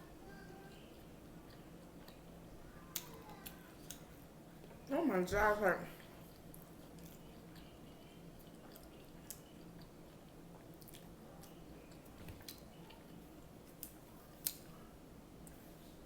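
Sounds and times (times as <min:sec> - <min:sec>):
person chewing food wetly: 0:00.6 - 0:04.8, 0:06.0 - 0:14.8
crunchy chewing clicks: 0:08.4 - 0:13.1.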